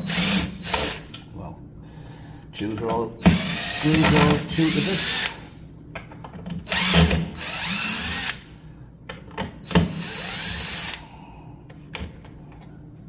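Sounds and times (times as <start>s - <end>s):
cordless power driver running: 6.7s - 8.5s.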